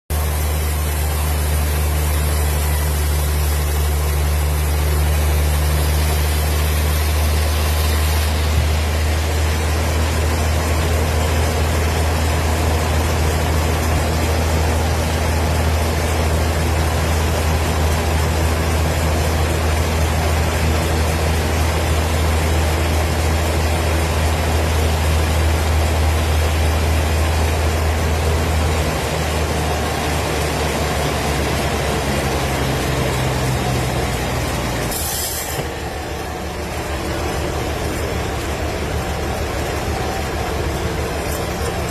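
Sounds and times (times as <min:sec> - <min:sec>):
wood-cutting machine running: 0:00.1 - 0:41.9.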